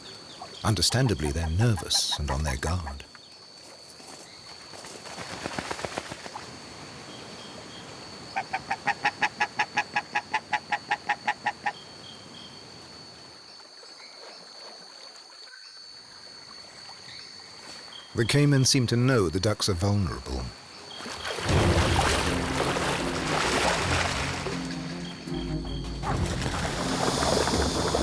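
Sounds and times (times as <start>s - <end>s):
high insect-like drone: 22.0s - 28.0s.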